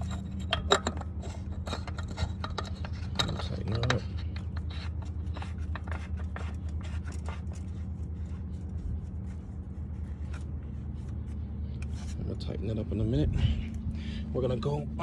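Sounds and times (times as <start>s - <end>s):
cap clicking and scraping: 0.0s - 7.8s
steady low hum: 0.0s - 15.0s.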